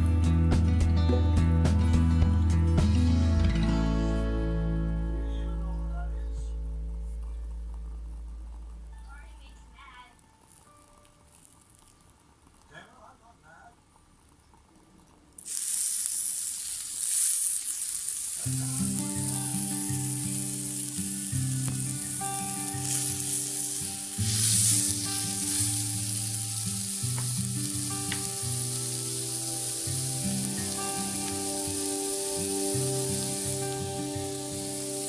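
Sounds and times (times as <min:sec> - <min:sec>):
background music with held notes: 0:00.0 - 0:10.4, 0:18.6 - 0:35.0
meat sizzling in a frying pan: 0:15.4 - 0:35.0.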